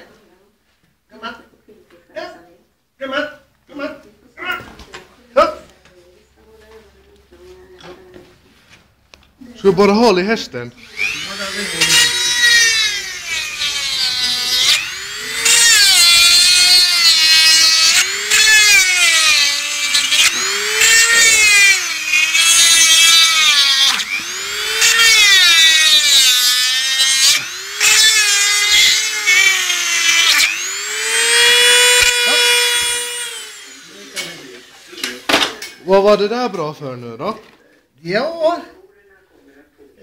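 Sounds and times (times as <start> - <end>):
power drill whining: 10.8 - 35.4.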